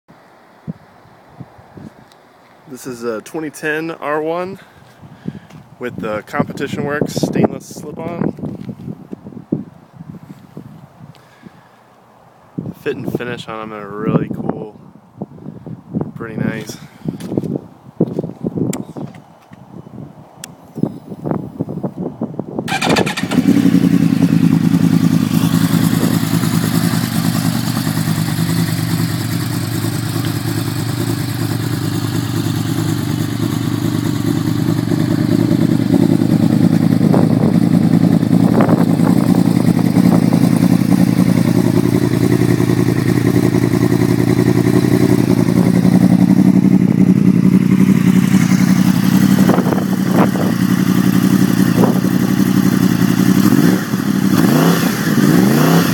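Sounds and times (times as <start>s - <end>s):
motorcycle engine idling: 22.7s - 54.4s.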